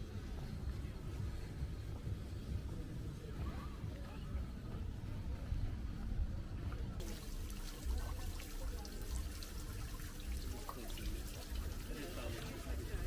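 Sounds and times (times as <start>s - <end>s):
water trickling and splashing: 6.6s - 13.0s.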